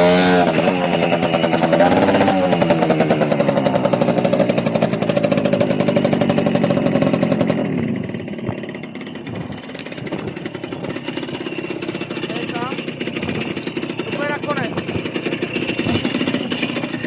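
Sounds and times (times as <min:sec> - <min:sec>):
small motorbike engine running: 0:00.0 - 0:17.0.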